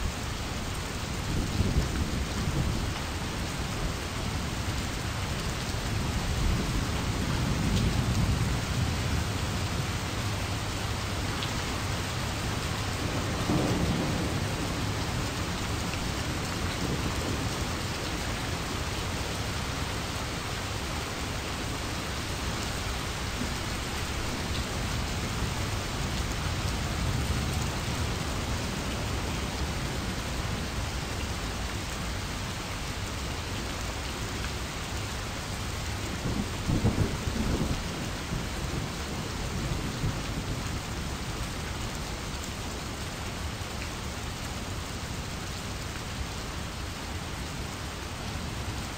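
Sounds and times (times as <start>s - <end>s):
steady rain: 0.0s - 48.9s
thunder rumbling: 12.8s - 17.8s.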